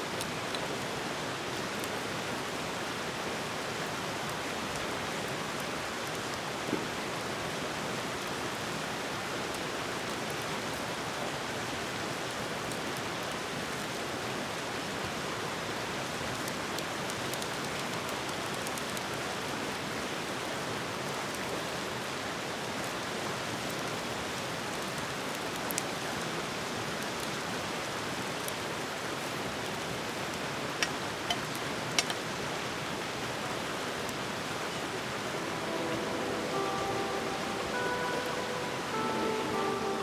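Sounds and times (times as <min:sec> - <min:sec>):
campfire burning with hiss: 0:00.1 - 0:40.0
fire popping: 0:30.8 - 0:32.2.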